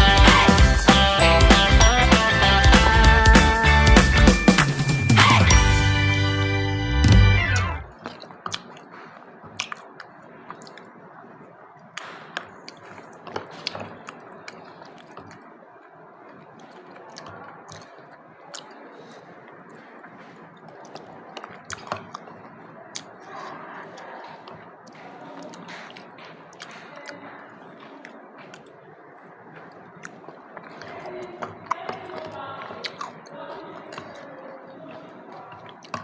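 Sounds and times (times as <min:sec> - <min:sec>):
soft wet squishing: 0:07.6 - 0:36.0.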